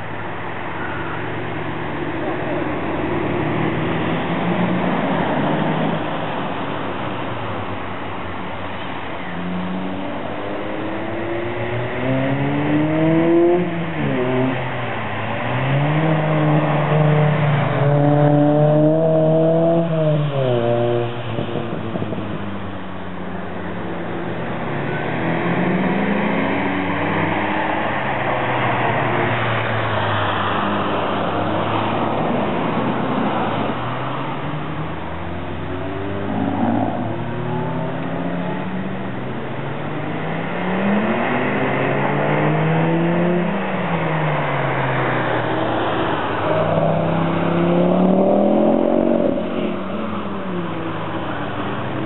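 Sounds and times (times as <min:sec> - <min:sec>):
car engine revving: 0:29.4 - 0:50.3.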